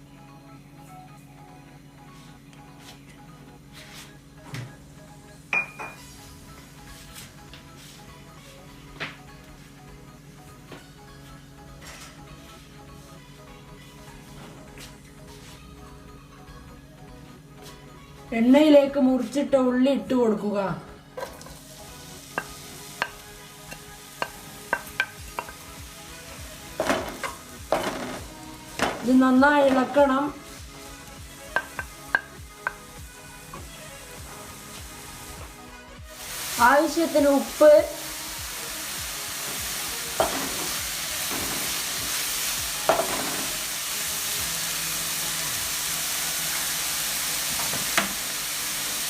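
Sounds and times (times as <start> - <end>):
spoon clinking against pan: 5.6 - 6.0, 22.4 - 25.6
onions sizzling in oil: 21.2 - 49.0.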